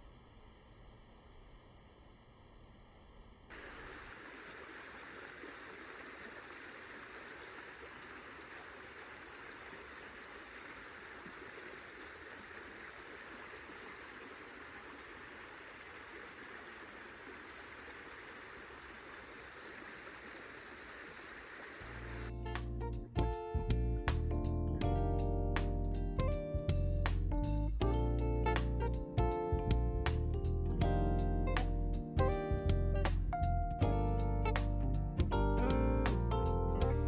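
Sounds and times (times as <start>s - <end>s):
running water: 3.5s - 22.3s.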